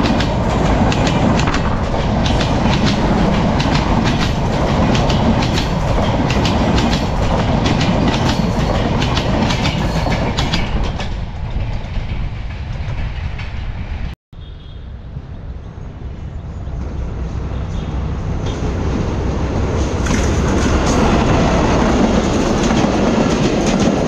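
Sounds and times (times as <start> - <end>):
train wheels clacking over rail joints: 0.0 - 13.6, 19.8 - 24.0.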